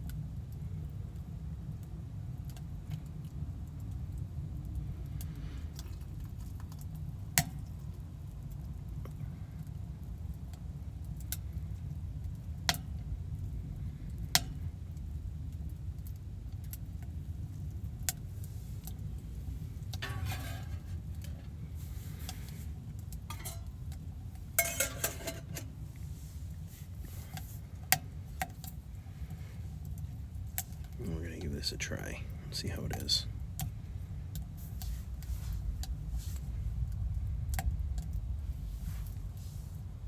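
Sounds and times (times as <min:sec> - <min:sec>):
steady low hum: 0:10.8 - 0:40.0
rustling: 0:18.4 - 0:27.8
cup and utensils clinking: 0:20.0 - 0:21.4, 0:23.3 - 0:23.8, 0:24.6 - 0:25.8.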